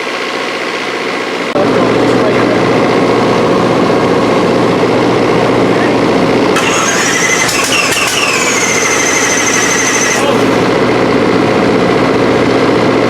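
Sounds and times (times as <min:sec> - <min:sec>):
engine running loudly: 0:00.0 - 0:13.0
high-pitched two-tone squeal: 0:06.6 - 0:10.9.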